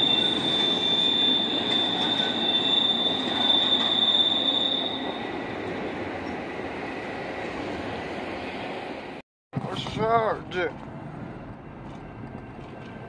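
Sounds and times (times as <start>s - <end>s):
train wheel squeal: 0.0s - 5.6s
freight train wheels rumbling: 0.0s - 13.0s.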